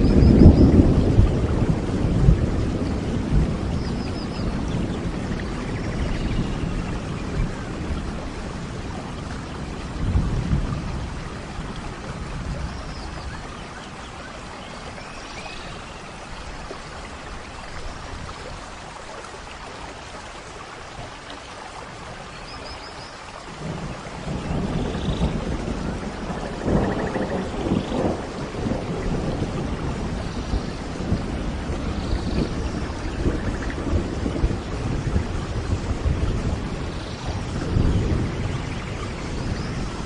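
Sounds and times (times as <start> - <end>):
low rolling thunder: 0.0 - 14.2, 23.4 - 40.0
steady rain: 0.0 - 40.0.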